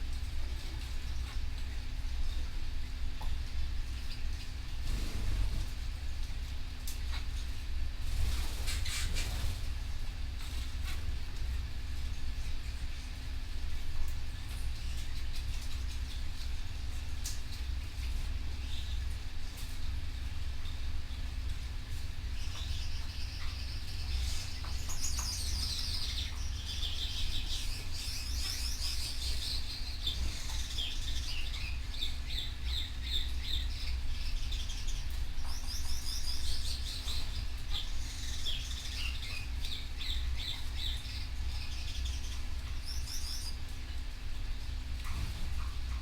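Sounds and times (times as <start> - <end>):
steady low hum: 0.0 - 46.0
canary singing trills: 22.2 - 43.7.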